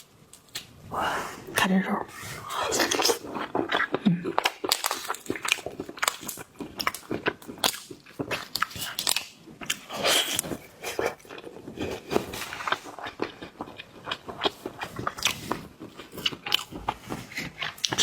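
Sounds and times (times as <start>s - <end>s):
biting and chewing: 2.8s - 18.0s
lobster shell cracking: 4.4s - 9.8s.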